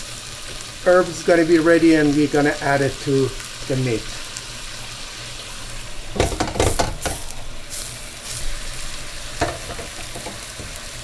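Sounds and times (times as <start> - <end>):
food sizzling in a pan: 0.0 - 11.0
wooden spoon knocking a pan: 6.2 - 7.2, 9.4 - 10.8.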